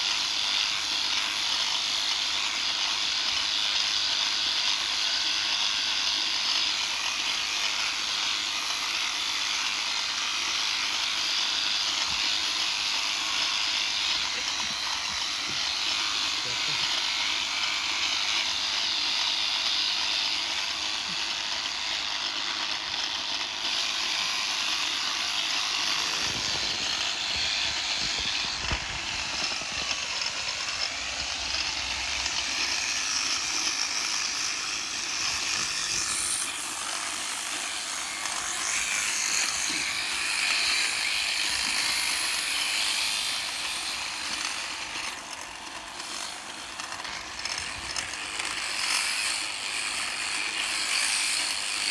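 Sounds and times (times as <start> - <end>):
electric shears buzzing: 0.0 - 51.9.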